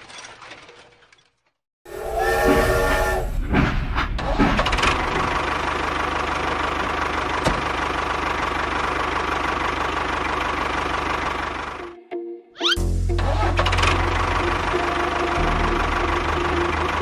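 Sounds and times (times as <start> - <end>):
brief pitched whine: 1.9 - 3.7
engine running with rapid pulse: 1.9 - 12.0, 12.8 - 17.0.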